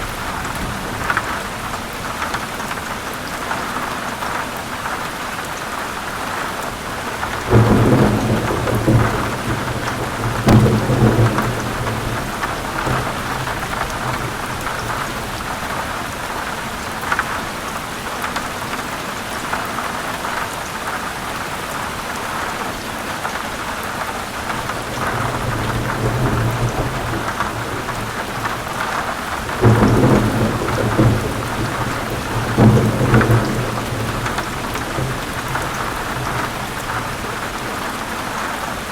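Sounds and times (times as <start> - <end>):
thunder rumbling: 0.0 - 3.0, 6.9 - 17.1, 24.5 - 38.1
heavy rain falling: 0.0 - 38.9.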